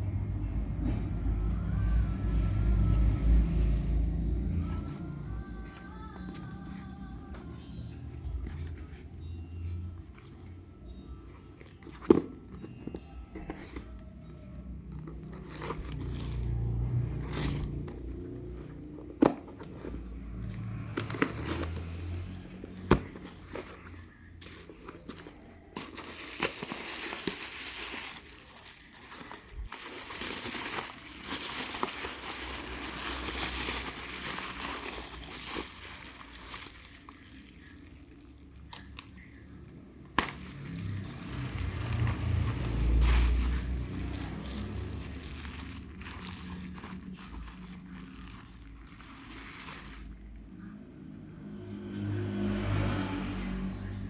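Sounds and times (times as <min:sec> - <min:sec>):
plastic crinkling and tearing: 0:09.6 - 0:50.6.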